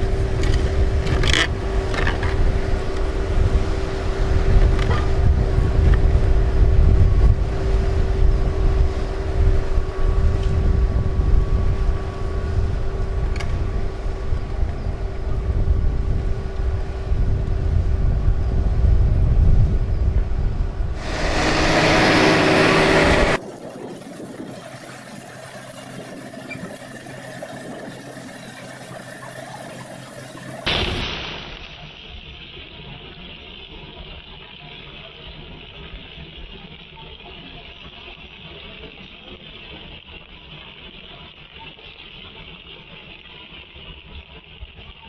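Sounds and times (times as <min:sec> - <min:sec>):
machine engine rumbling: 0:00.0 - 0:31.0
loud hissing: 0:21.0 - 0:23.4.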